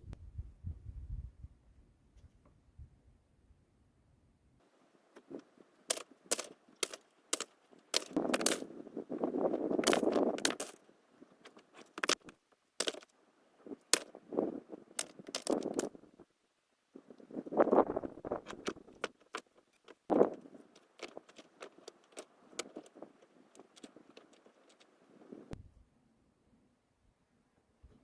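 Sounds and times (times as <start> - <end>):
scraping rustle: 4.7 - 16.2, 17.0 - 25.6
hard objects knocking and clicking: 5.2 - 8.7, 9.5 - 13.1, 15.0 - 16.0, 18.2 - 25.0.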